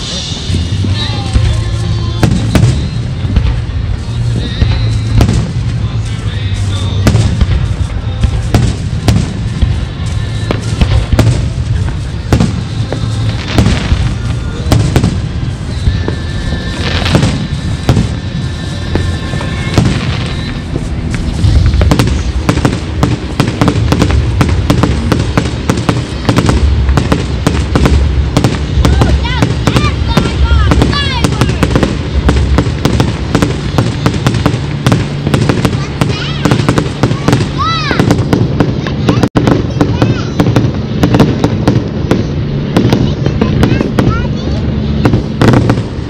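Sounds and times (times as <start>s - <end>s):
fireworks bangs and crackling: 0.0s - 46.0s
deep booms of bursting shells: 4.6s - 5.8s, 7.0s - 9.9s, 10.5s - 19.1s, 19.7s - 46.0s.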